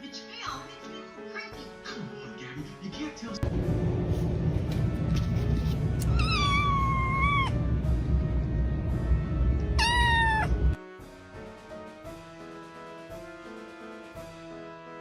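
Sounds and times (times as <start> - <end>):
loud low rumble: 3.4 - 10.8
cat meowing: 6.0 - 7.6, 9.8 - 10.8.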